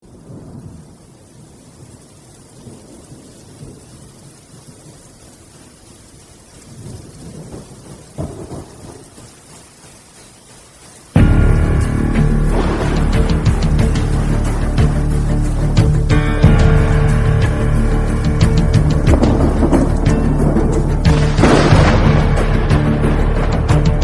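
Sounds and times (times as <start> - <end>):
rain falling: 0.0 - 24.0
sharp thunderclap: 6.7 - 9.2, 11.2 - 15.0, 18.4 - 24.0
rolling thunder: 6.7 - 9.3, 11.2 - 15.6, 16.4 - 24.0.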